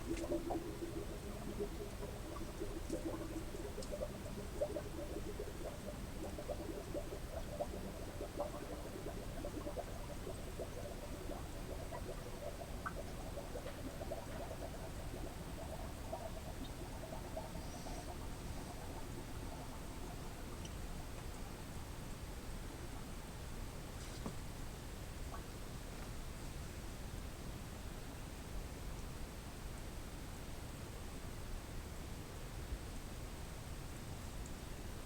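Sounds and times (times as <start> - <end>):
water gurgling and bubbling: 0.0 - 20.7.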